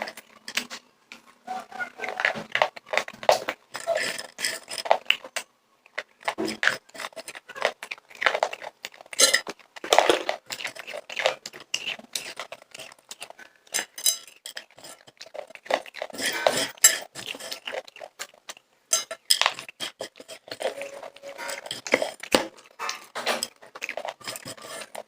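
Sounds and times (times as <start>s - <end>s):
person crunching popcorn: 0.0s - 25.0s
dish clinking: 18.9s - 19.6s.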